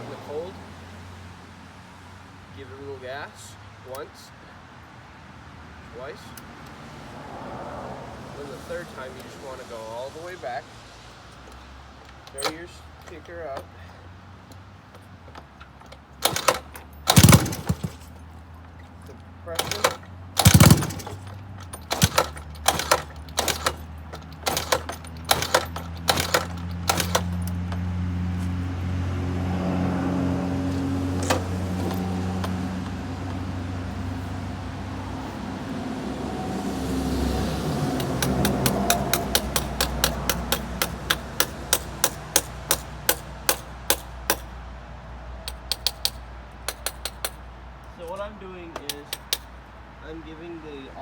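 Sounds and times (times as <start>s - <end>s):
wrench tapping on metal: 14.5s - 27.9s, 38.0s - 44.6s, 45.4s - 49.6s
scooter engine running: 16.2s - 18.3s, 19.5s - 36.5s, 37.3s - 44.4s.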